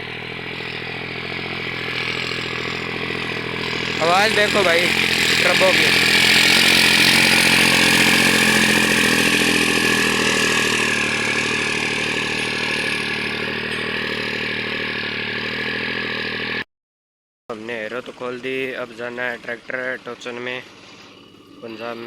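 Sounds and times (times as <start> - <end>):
tractor diesel engine running: 0.0 - 16.6, 17.5 - 22.0
turbocharger whine: 0.0 - 16.7, 17.6 - 22.0.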